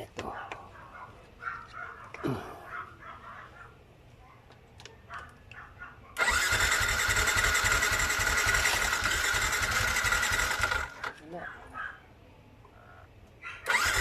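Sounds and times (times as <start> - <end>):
electric starter cranking engine: 6.2 - 11.2, 13.6 - 14.0.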